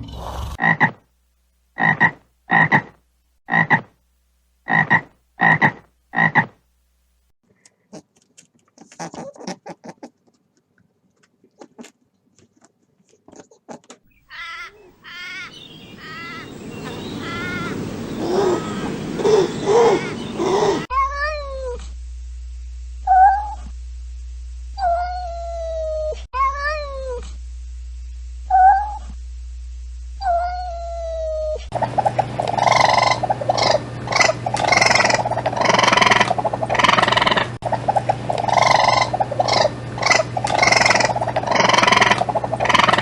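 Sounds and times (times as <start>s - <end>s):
rapid animal calls: 14.1s - 20.9s, 31.7s - 43.0s
cat meowing: 24.8s - 27.2s.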